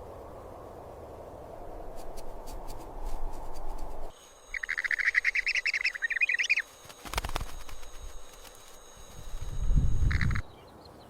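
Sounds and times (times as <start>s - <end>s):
low rushing background: 0.0s - 10.6s
scattered clicks: 2.0s - 10.4s
bird chattering call: 4.5s - 10.6s.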